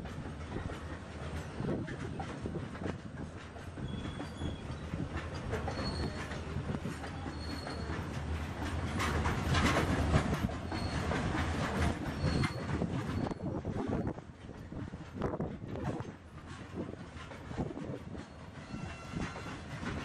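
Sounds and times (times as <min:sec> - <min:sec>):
freight wagons rolling on track: 0:00.0 - 0:20.0
wheels clattering over rail joints: 0:00.0 - 0:20.0
high wheel squeals: 0:03.8 - 0:08.1, 0:10.6 - 0:11.2, 0:12.1 - 0:13.5, 0:18.3 - 0:19.7.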